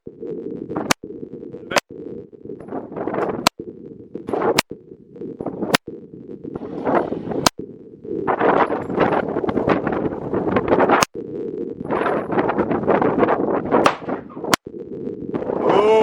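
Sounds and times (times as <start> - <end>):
handgun shots: 13.9 - 14.2.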